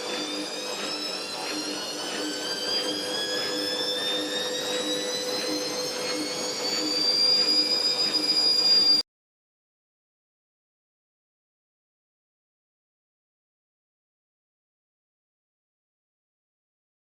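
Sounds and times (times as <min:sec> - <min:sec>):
washing machine drum spinning up: 0:00.0 - 0:09.0.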